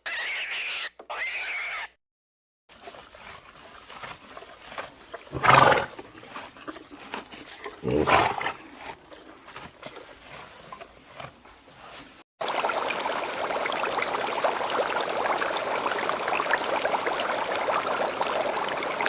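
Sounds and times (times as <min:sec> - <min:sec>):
loud animal calls: 0:00.0 - 0:02.0, 0:05.3 - 0:06.0.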